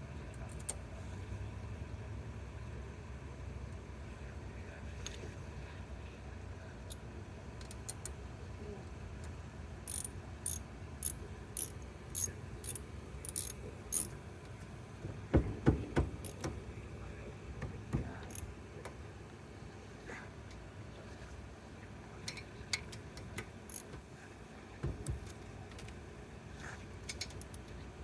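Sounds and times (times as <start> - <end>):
light metallic clicks: 9.9 - 14.7, 22.2 - 24.0
metal clanks of tools: 11.6 - 14.1.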